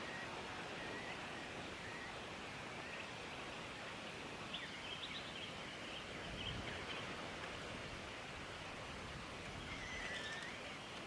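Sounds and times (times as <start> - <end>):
steady outdoor hiss: 0.0 - 11.0
faint high bird chirps: 9.6 - 10.8.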